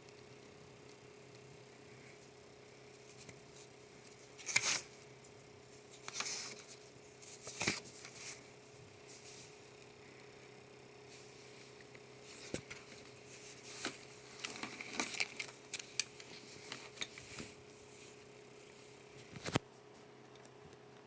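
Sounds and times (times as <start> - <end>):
faint steady hum: 0.0 - 21.0
paper pages rustling: 3.0 - 5.0, 5.8 - 9.6, 12.2 - 18.2.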